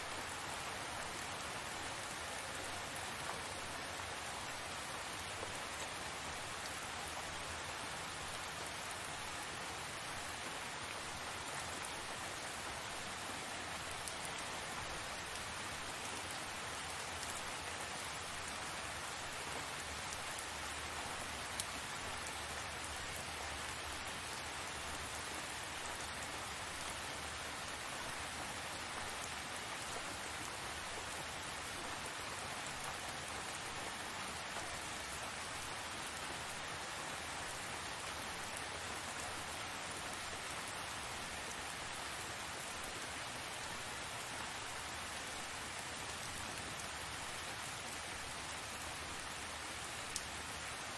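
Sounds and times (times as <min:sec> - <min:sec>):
steady rain hiss: 0:00.0 - 0:50.9.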